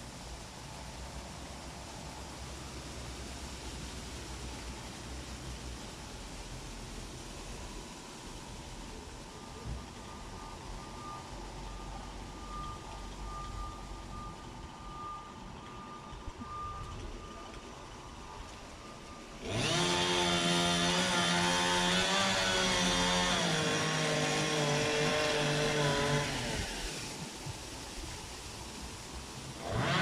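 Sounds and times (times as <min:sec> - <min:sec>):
vehicle reversing beeper: 0:08.5 - 0:28.2
chainsaw running at high revs: 0:19.4 - 0:27.2, 0:29.5 - 0:30.0.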